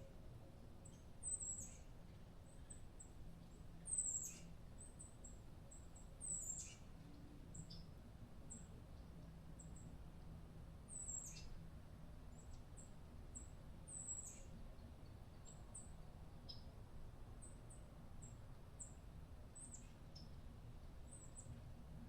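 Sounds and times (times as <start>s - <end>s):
small bird chirps: 0.8s - 1.9s, 3.8s - 8.7s, 10.9s - 11.6s, 12.3s - 16.7s, 19.6s - 20.4s.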